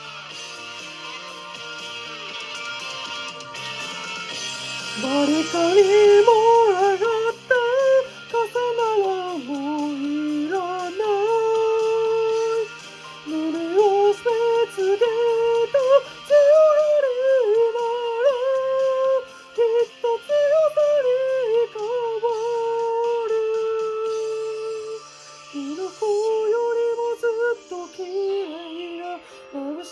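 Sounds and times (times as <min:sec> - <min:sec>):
karaoke backing track: 0:00.0 - 0:29.9.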